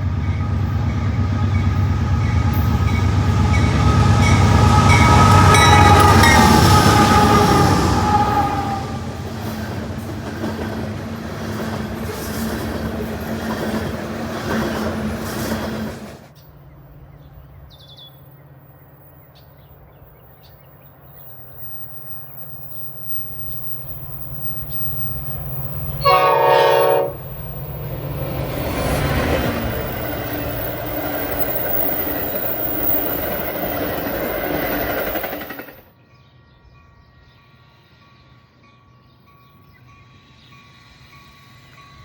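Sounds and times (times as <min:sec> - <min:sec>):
train horn blast: 0:00.0 - 0:09.4, 0:26.0 - 0:27.4
approaching train drone: 0:00.0 - 0:18.7, 0:19.5 - 0:42.0
train passing: 0:00.0 - 0:42.0.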